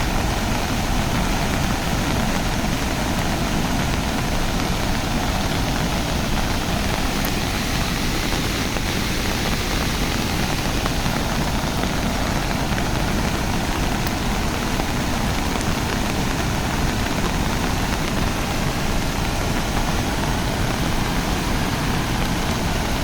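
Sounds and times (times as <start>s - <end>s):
steady rushing noise: 0.0s - 23.0s.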